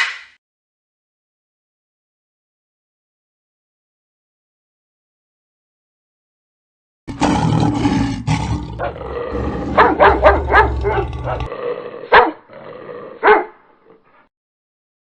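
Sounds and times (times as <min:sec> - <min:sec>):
dog barking: 0:08.8 - 0:12.5, 0:13.2 - 0:13.7.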